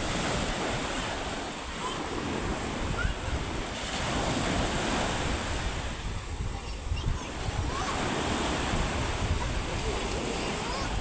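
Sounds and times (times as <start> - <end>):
waves breaking on shore: 0.0 - 11.0
wind buffeting microphone: 0.0 - 11.0.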